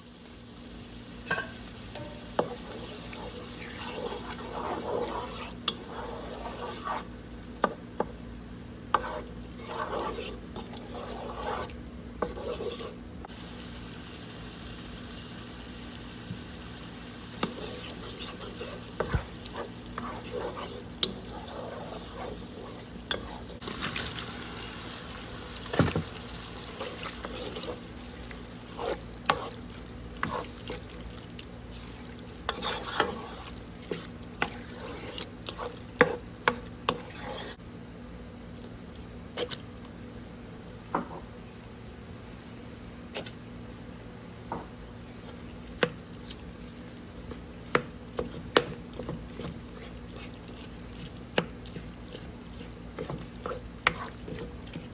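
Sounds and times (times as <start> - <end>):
food sizzling in a pan: 0.0 - 37.6
utensil scraping a pan: 1.3 - 7.8, 8.9 - 13.0, 17.4 - 23.6, 26.8 - 27.8, 28.7 - 29.6, 30.2 - 31.0, 31.8 - 37.6.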